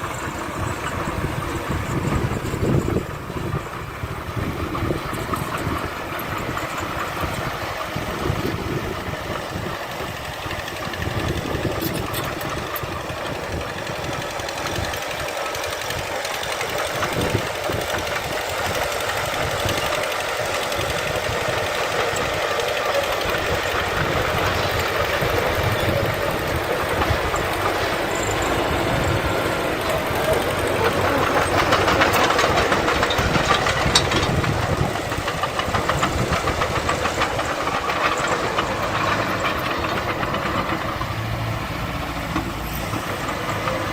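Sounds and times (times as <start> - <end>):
heavy machinery diesel engine running: 0.0 - 43.9.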